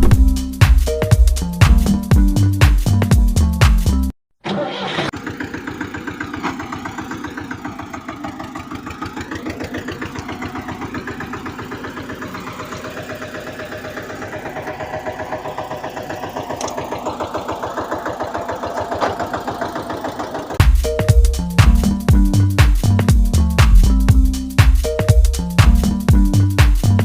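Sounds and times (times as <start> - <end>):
small engine chugging: 4.5 - 22.1.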